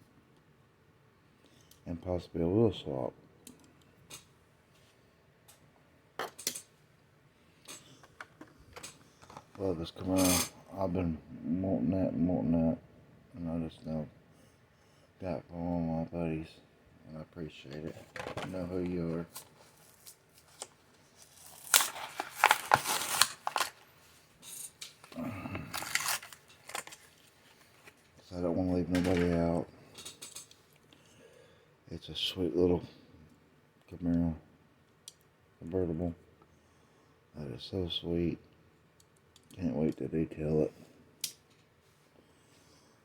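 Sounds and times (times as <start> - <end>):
plastic packaging clicks and crinkles: 18.1 - 28.2.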